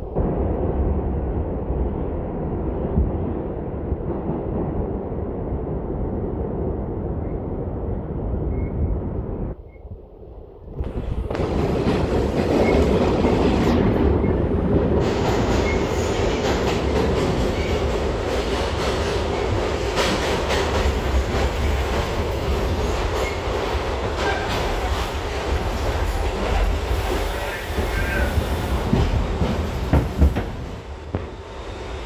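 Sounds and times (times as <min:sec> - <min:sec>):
wheels rumbling on rail: 0:02.0 - 0:32.0
rail-joint clicks: 0:10.8 - 0:31.3.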